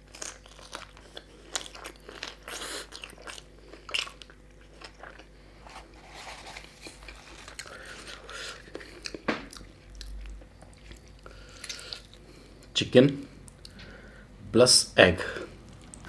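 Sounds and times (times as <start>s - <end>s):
close chewing and biting: 0.0s - 12.4s.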